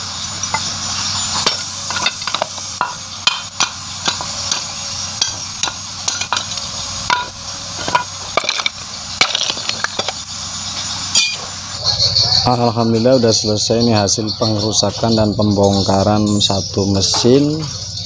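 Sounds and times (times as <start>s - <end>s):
steady hiss: 0.0s - 11.8s
metal parts and tools clattering: 0.4s - 13.3s.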